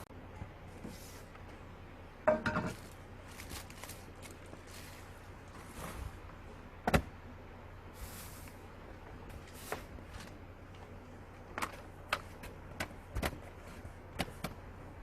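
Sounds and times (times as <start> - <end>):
steady low hum: 0.0 - 15.0
sharp knocks and clanks: 2.3 - 2.8.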